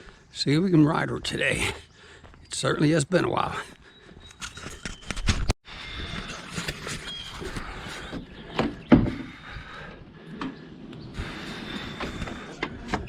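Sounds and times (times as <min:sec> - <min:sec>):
heavy thumps: 0:08.1 - 0:09.8.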